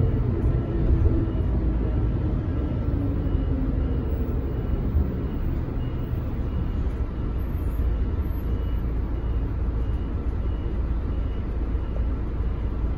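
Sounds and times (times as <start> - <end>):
bus engine and road rumble: 0.0 - 12.9.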